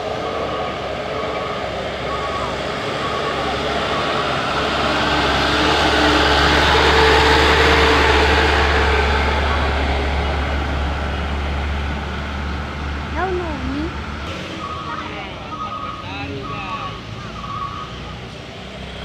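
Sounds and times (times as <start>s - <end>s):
heavy truck engine humming: 0.0s - 19.0s
road noise rushing: 0.0s - 19.0s.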